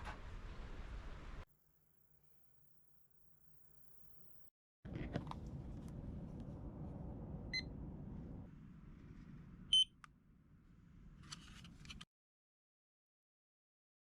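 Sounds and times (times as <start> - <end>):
low steady rumble: 4.9 - 11.9.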